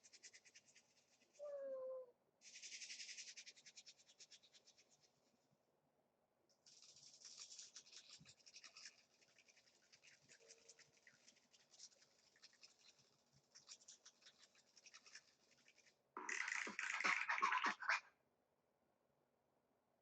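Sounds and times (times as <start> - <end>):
faint rapid scratching: 0.0 - 1.5, 2.4 - 5.4, 6.5 - 18.0.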